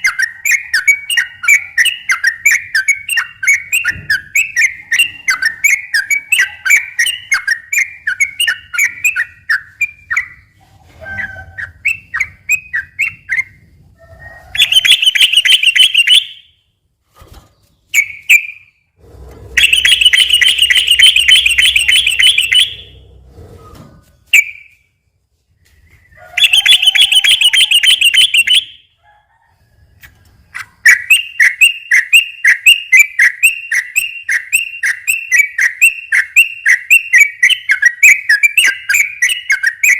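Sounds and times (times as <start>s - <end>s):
bird chirping: 0.0s - 16.7s, 17.3s - 25.0s, 25.6s - 29.0s, 30.0s - 39.9s
buzzy bird trills: 19.5s - 23.0s, 25.7s - 28.8s.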